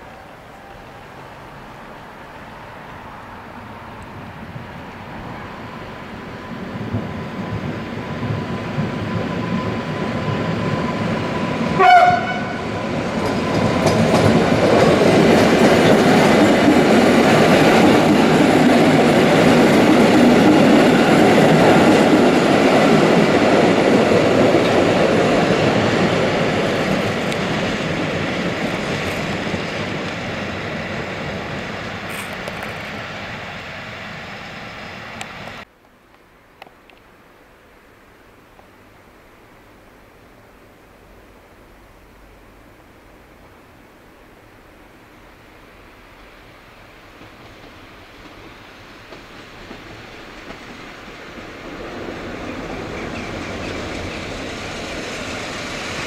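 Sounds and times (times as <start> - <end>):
electric train running past: 0.0 - 35.7, 40.4 - 56.0
train horn blast: 11.7 - 12.8
wheels clattering over rail joints: 12.8 - 33.1.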